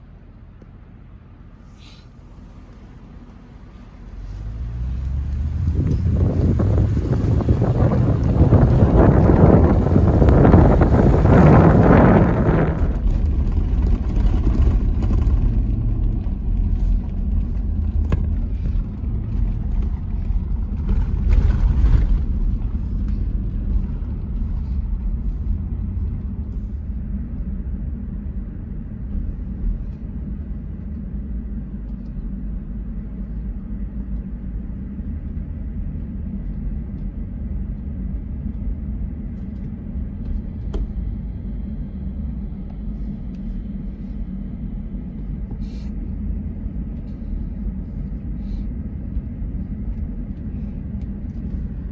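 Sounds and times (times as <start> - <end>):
vehicle engine and road rumble: 0.0 - 51.9
rushes of noise: 3.7 - 30.3.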